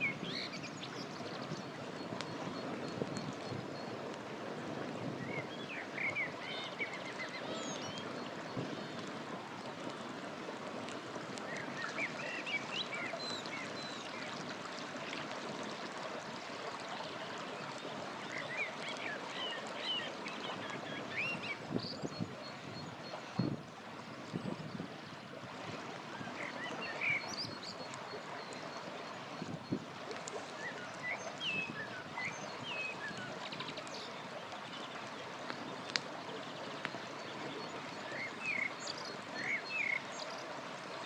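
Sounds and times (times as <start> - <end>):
river running: 0.0 - 41.0
campfire crackles: 35.4 - 36.2.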